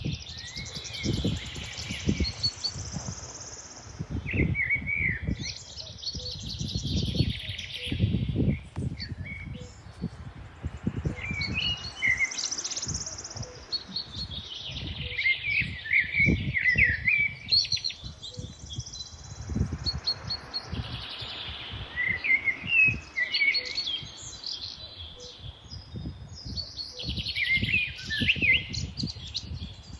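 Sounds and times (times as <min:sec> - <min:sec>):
songbirds singing: 0:00.0 - 0:29.9
low rumbling surges: 0:09.2 - 0:17.1, 0:18.6 - 0:25.2.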